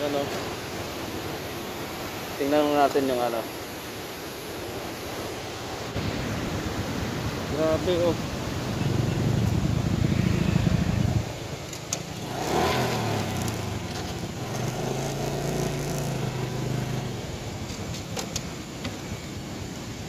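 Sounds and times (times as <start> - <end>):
small motorcycle engine running: 12.0 - 17.6.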